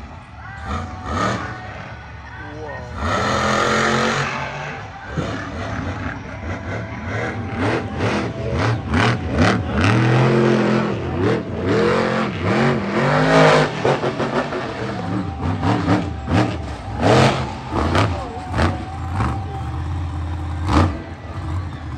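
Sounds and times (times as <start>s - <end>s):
monster truck engine revving: 0.0s - 21.9s.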